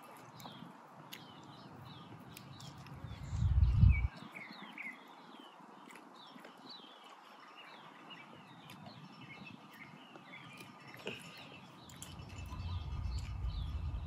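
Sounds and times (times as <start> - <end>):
faint outdoor background noise: 0.0 - 14.0
small birds chirping: 0.0 - 14.0
low rumble: 3.0 - 4.1, 12.4 - 14.0.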